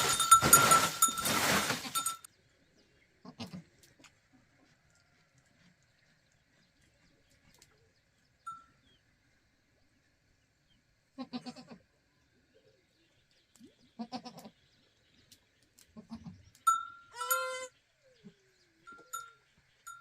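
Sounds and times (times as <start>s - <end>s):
farm animals bleating: 3.2s - 3.7s, 11.2s - 11.9s, 14.0s - 14.6s, 16.0s - 16.5s, 17.1s - 17.8s.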